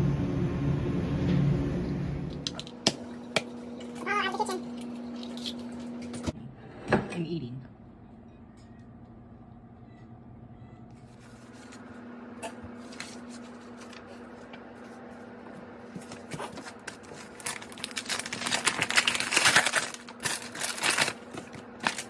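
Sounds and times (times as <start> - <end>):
low hum: 0.0 - 6.8
crinkling and rustling: 11.0 - 22.0.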